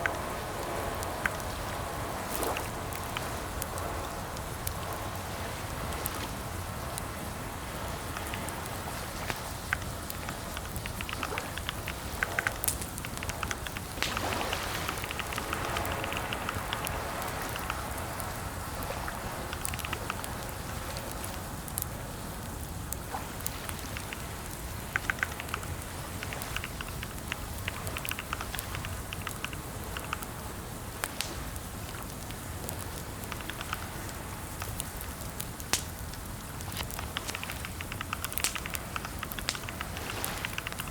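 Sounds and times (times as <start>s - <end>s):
background hiss: 0.0s - 40.9s
keyboard typing: 25.0s - 30.2s, 37.0s - 40.9s.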